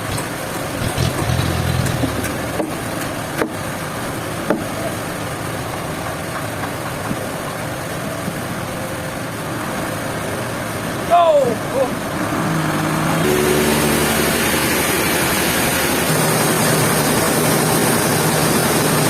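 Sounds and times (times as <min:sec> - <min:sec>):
sawmill machinery running: 0:00.0 - 0:07.9, 0:11.9 - 0:19.0.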